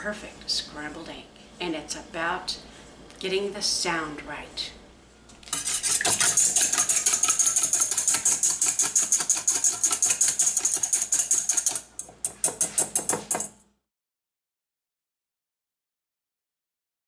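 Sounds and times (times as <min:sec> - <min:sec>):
eggs beaten in a bowl: 0:05.4 - 0:13.6.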